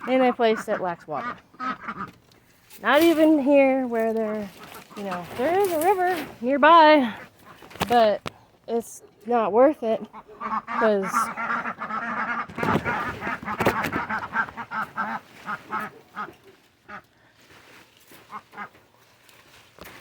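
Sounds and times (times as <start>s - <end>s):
ducks quacking: 0.0s - 2.2s, 4.2s - 7.8s, 9.8s - 17.1s, 18.2s - 18.9s.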